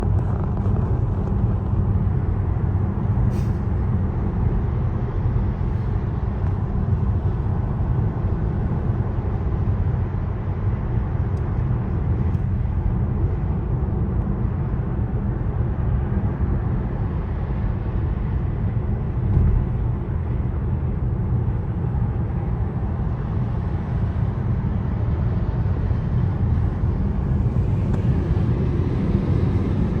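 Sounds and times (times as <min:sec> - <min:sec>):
loud low rumble: 0:00.0 - 0:05.8, 0:19.0 - 0:30.0.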